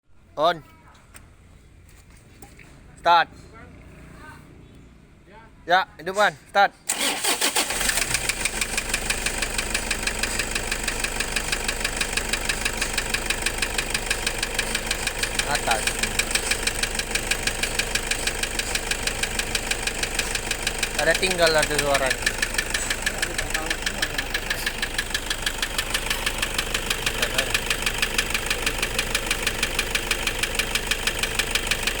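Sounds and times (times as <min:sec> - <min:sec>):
diesel engine idling with knocking: 0:07.7 - 0:32.0.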